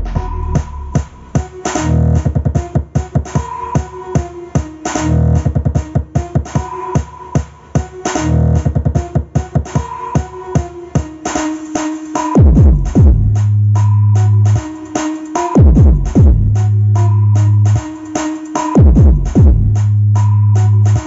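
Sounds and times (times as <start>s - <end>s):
deep bass glides: 0.0s - 2.3s, 12.6s - 14.6s, 15.7s - 17.8s, 18.9s - 21.0s
electronic dance music: 0.0s - 21.0s.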